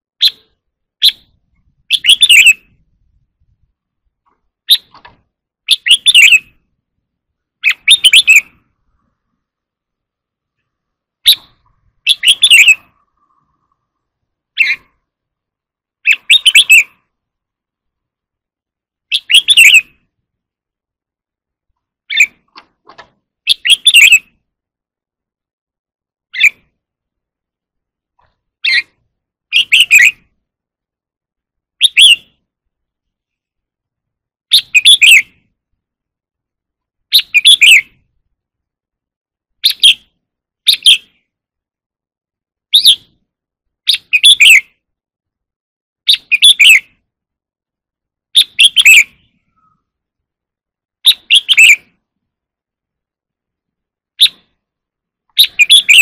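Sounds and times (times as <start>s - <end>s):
bulbul singing: 0.2s - 2.8s, 4.6s - 6.7s, 7.5s - 9.2s, 10.6s - 15.1s, 15.9s - 17.2s, 19.0s - 20.1s, 22.0s - 22.6s, 23.4s - 24.4s, 28.6s - 30.4s, 34.5s - 35.4s, 37.1s - 38.0s, 39.6s - 41.3s, 42.7s - 43.2s, 43.8s - 44.8s, 46.1s - 47.0s, 48.3s - 50.0s, 51.0s - 52.0s, 55.3s - 56.0s.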